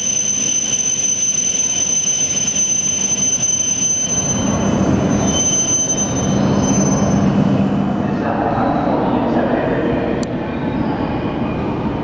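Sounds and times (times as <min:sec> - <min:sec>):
high-pitched electric whine: 0:00.0 - 0:07.7
low train rumble: 0:01.4 - 0:12.0.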